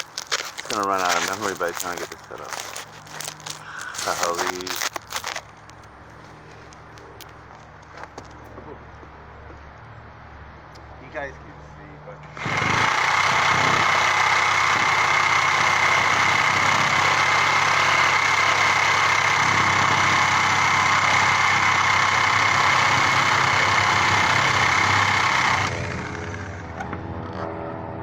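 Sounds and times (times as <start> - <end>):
power saw cutting: 0.0 - 5.4, 12.2 - 26.8.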